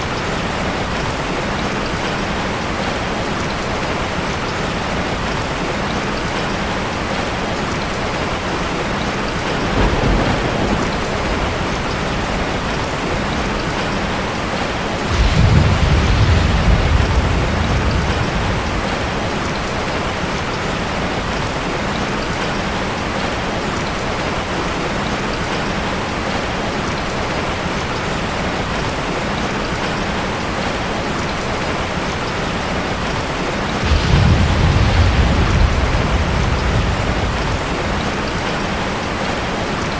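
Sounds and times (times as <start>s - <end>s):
heavy rain falling: 0.0s - 39.9s
thunder rumbling: 8.8s - 21.4s, 33.3s - 39.9s.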